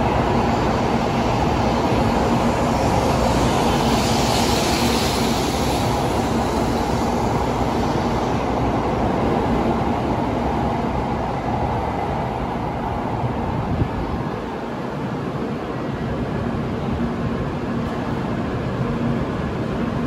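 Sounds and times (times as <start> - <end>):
train running noise: 0.0 - 20.0.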